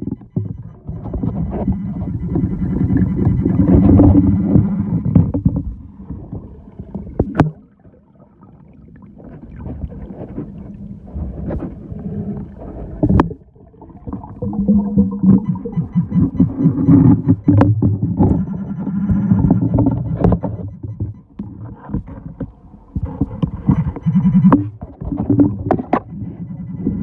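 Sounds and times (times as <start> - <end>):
steady low hum: 0.0 - 7.9
water sloshing and gurgling: 0.0 - 27.0.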